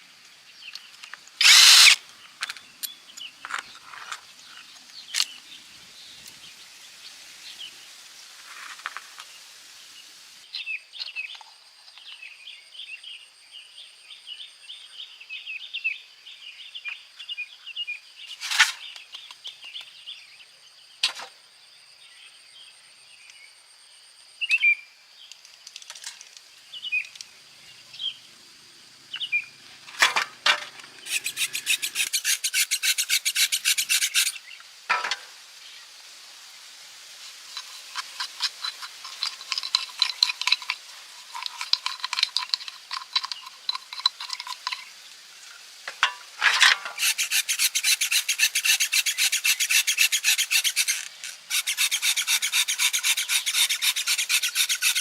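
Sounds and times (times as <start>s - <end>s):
rapid rasping strokes: 31.0s - 34.4s, 37.5s - 44.9s, 46.9s - 55.0s.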